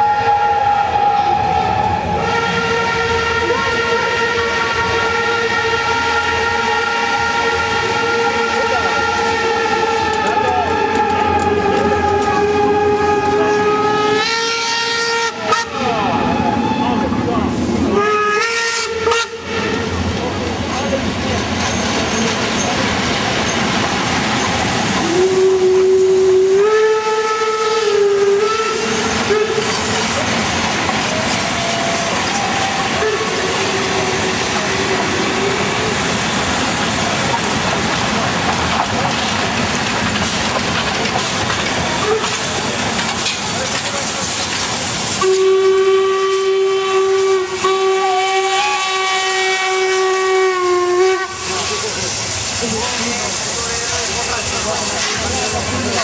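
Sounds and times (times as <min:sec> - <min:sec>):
steam locomotive whistle: 0:00.0 - 0:17.1, 0:17.8 - 0:20.0, 0:24.1 - 0:36.2, 0:42.0 - 0:42.6, 0:45.1 - 0:56.0
hiss of escaping steam: 0:17.4 - 0:18.1, 0:21.4 - 0:56.0.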